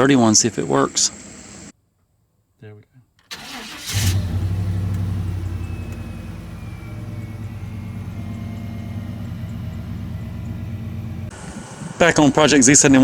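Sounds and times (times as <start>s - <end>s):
pickup engine idling: 3.3s - 12.0s.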